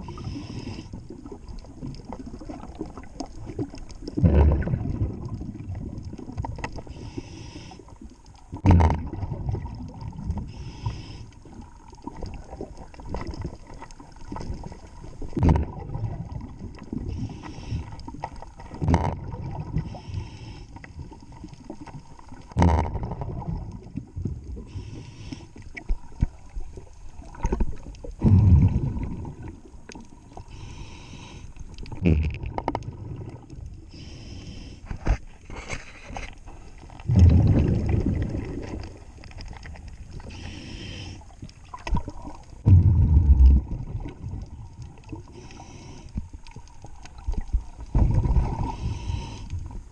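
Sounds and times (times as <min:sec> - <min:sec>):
regulator hiss on inhale: 0:00.0 - 0:01.2, 0:06.8 - 0:08.2, 0:10.4 - 0:11.7, 0:17.0 - 0:18.6, 0:19.8 - 0:21.7, 0:24.6 - 0:25.9, 0:30.3 - 0:31.8, 0:33.8 - 0:36.8, 0:40.1 - 0:41.4, 0:45.2 - 0:46.4, 0:48.4 - 0:49.9
rumbling rush of bubbles: 0:01.1 - 0:06.6, 0:08.6 - 0:10.6, 0:12.0 - 0:17.3, 0:22.5 - 0:24.8, 0:26.0 - 0:30.2, 0:31.9 - 0:33.8, 0:36.8 - 0:40.3, 0:41.6 - 0:45.4, 0:47.1 - 0:49.0.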